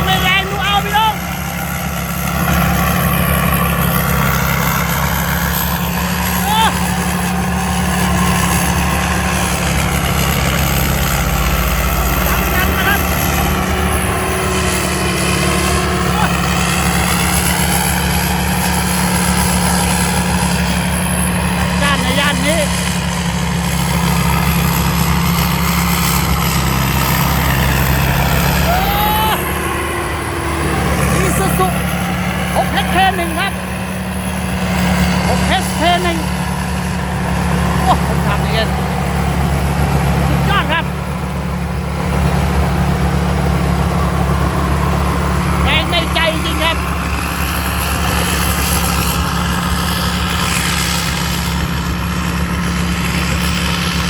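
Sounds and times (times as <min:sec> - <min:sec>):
diesel engine droning: 0:00.0 - 0:54.0
machinery noise: 0:00.0 - 0:54.0.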